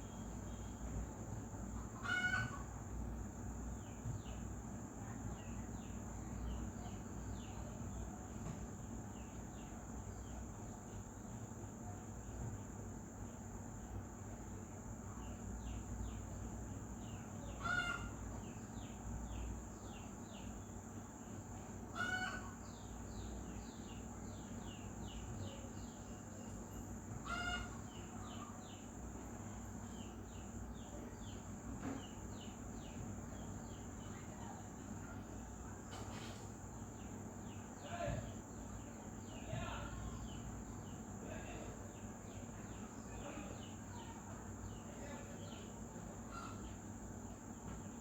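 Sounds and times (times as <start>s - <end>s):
loud bird call: 1.8s - 2.8s, 17.4s - 18.5s, 21.9s - 23.2s, 27.2s - 28.8s, 46.2s - 46.8s
insect trill: 9.1s - 35.7s.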